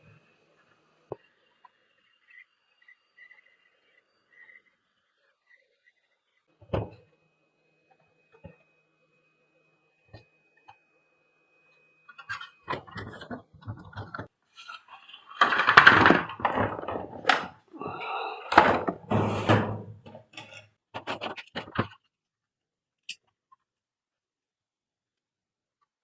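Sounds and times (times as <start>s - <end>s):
plastic parts knocking and scraping: 12.1s - 17.7s, 18.5s - 22.0s.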